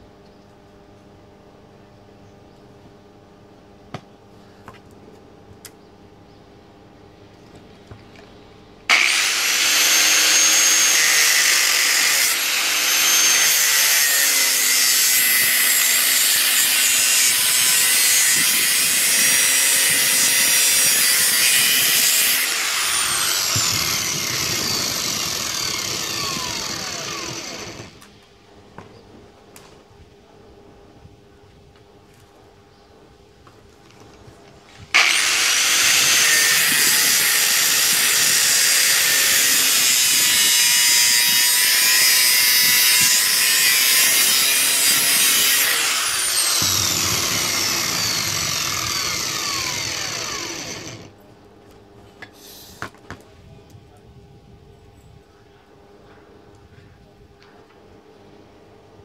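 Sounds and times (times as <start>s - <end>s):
angle grinder whining on metal: 8.9s - 28.2s, 35.0s - 51.2s.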